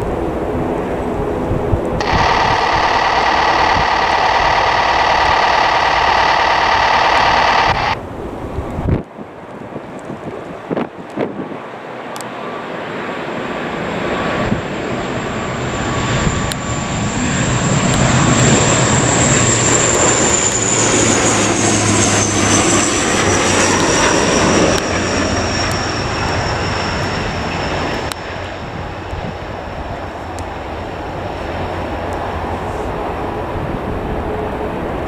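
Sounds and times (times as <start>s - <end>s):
airliner engines roaring past: 0.0s - 35.0s
high engine whine: 2.0s - 8.0s, 13.6s - 32.5s.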